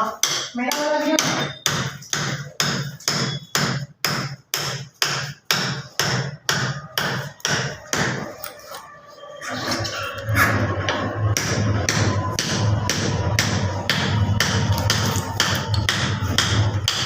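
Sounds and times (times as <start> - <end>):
hammer striking: 0.0 - 8.6, 10.8 - 17.0.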